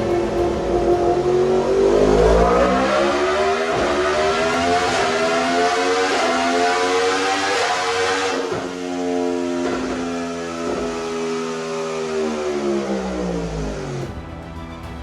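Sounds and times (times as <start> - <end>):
motorcycle engine accelerating: 0.0 - 14.1.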